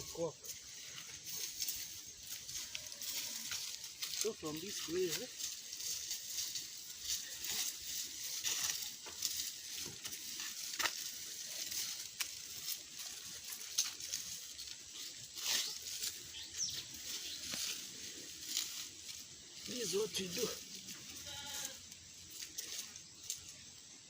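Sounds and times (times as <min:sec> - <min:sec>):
sawdust rustling: 0:00.0 - 0:24.0
spade scraping: 0:15.1 - 0:18.8.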